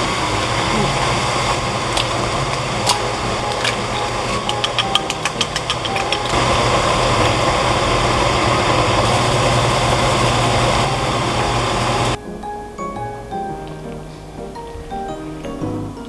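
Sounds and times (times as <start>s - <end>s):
small electric motor humming: 0.0s - 12.2s.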